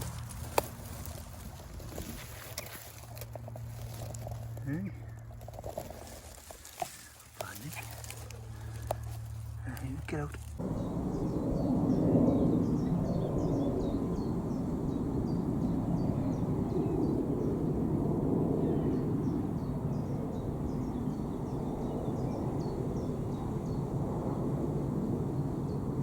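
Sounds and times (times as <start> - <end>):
low rumbling noise: 0.0 - 26.0.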